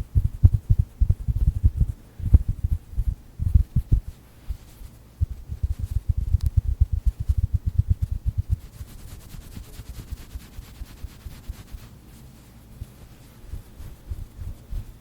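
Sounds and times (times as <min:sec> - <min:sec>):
hands patting stuffed toy: 0:00.0 - 0:04.6, 0:05.2 - 0:08.9.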